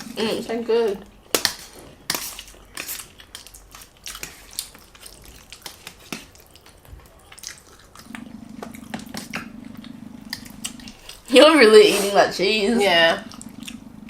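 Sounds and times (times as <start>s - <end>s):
wet eating sounds: 0.0s - 14.0s
low steady buzz: 8.0s - 14.0s.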